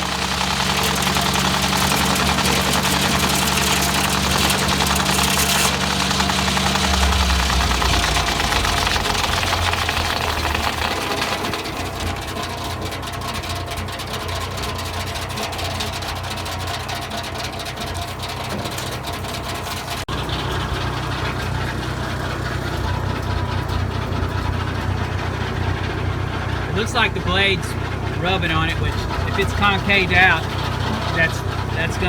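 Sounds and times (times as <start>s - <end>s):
engine running: 0.0s - 32.0s
saw blade whirring: 0.1s - 11.4s.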